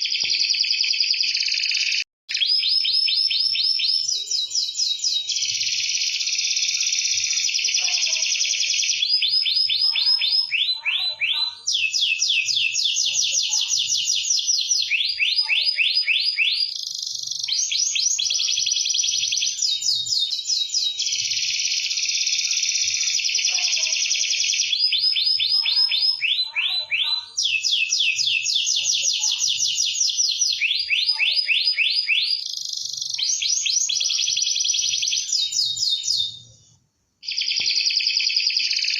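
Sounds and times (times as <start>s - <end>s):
canary singing: 0.0s - 36.5s, 37.2s - 38.9s.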